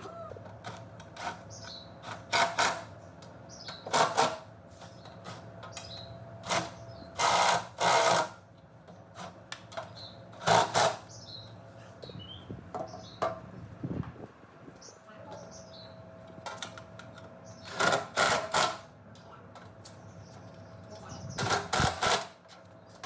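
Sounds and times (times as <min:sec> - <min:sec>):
birds chirping faintly: 0:14.7 - 0:17.9, 0:19.2 - 0:23.0.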